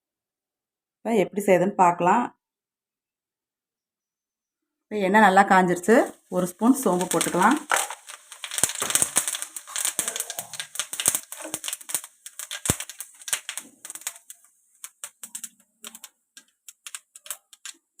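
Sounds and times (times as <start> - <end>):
seeds popping in hot oil: 5.2 - 18.0
faint oil sizzle: 5.7 - 18.0.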